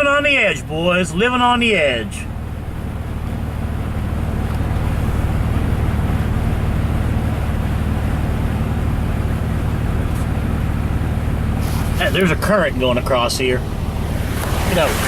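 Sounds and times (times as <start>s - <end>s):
vehicle engine drone: 0.0s - 15.0s
tyres rushing through water: 11.5s - 15.0s.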